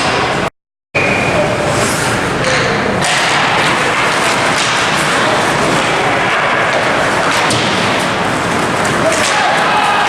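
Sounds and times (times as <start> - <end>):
crowd noise: 0.0 - 10.0.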